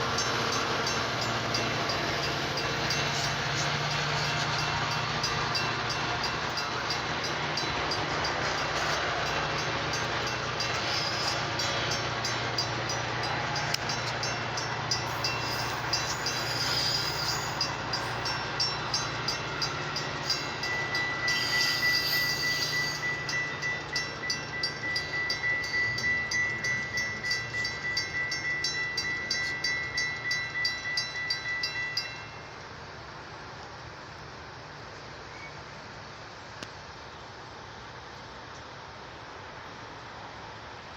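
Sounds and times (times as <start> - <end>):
wheels clacking over rail joints: 0.0 - 32.3
thin steady high tone: 0.0 - 32.7
train rumbling past: 0.0 - 40.9.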